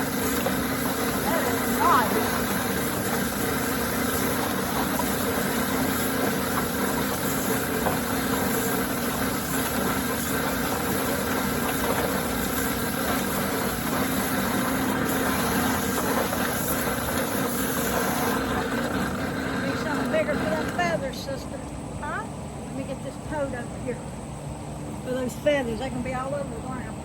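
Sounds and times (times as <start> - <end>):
chicken plucker running: 0.0 - 21.0.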